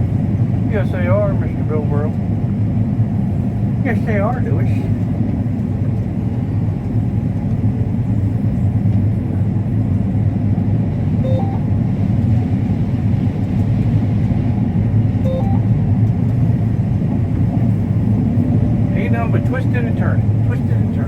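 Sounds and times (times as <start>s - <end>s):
combine harvester engine rumble: 0.0s - 21.0s
two-note electronic tone: 11.2s - 11.8s, 15.3s - 15.8s.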